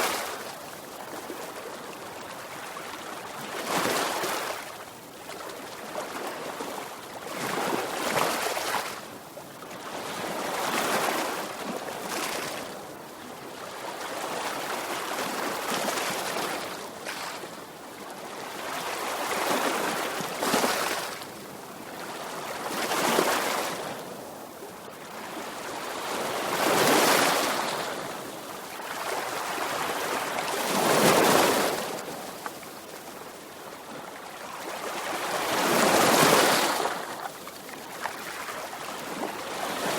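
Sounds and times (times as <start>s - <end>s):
sea waves breaking on shore: 25.1s - 39.9s.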